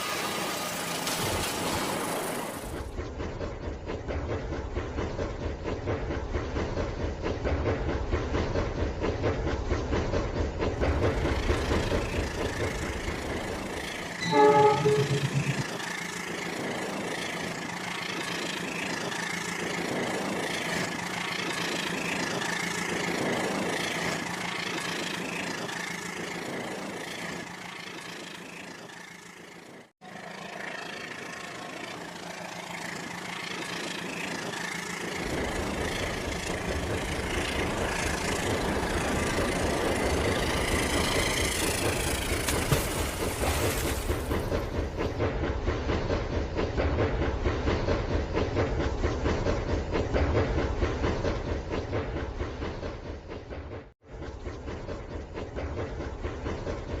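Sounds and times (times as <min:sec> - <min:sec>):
toy train rattling on track: 0:00.0 - 0:02.9, 0:15.6 - 0:44.4
electronic train horn: 0:14.2 - 0:15.7.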